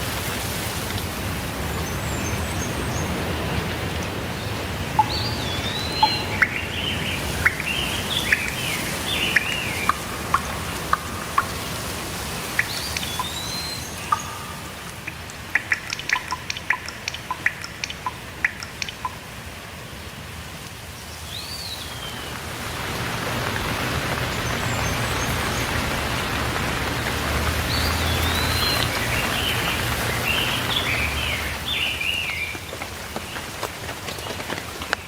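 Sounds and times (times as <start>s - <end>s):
water drips ticking: 0.0s - 19.8s, 20.6s - 35.0s
rain hiss: 0.0s - 35.0s
birds singing: 1.6s - 19.2s, 21.2s - 22.4s, 24.2s - 26.4s, 27.6s - 33.5s.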